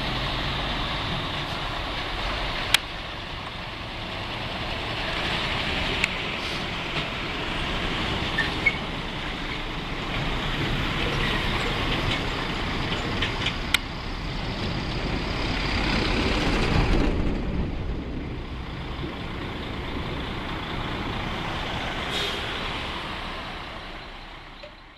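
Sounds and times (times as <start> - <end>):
truck engine pulling away: 0.0 - 24.9
brief air hiss: 22.1 - 22.6.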